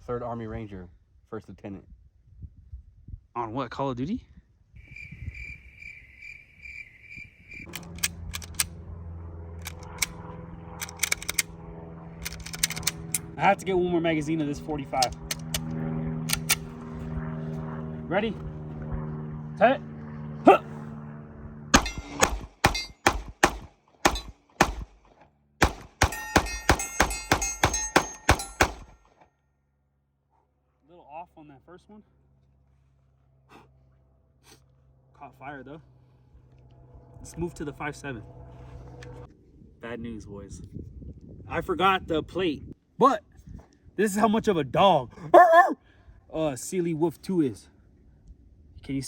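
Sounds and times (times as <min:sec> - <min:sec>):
low hum: 0:04.6 - 0:29.1, 0:32.2 - 0:41.5
crickets chirping: 0:04.8 - 0:07.8
sharp clicks: 0:07.6 - 0:08.8, 0:09.6 - 0:10.2, 0:10.8 - 0:11.5, 0:12.2 - 0:13.3, 0:15.0 - 0:16.7
bullets ringing on steel target: 0:21.8 - 0:23.2, 0:24.1 - 0:24.3, 0:26.0 - 0:29.0
pistol shots: 0:21.8 - 0:29.0.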